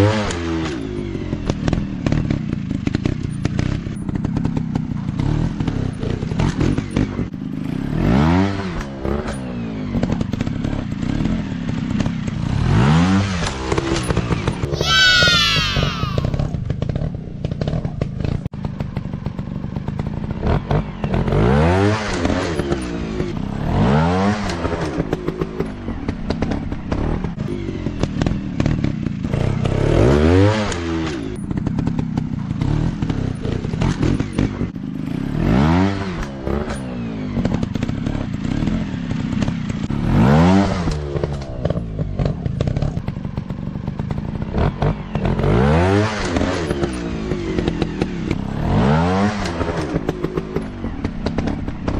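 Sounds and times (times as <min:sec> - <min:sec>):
dirt bike engine revving: 0:28.1 - 0:43.0, 0:44.5 - 0:51.9.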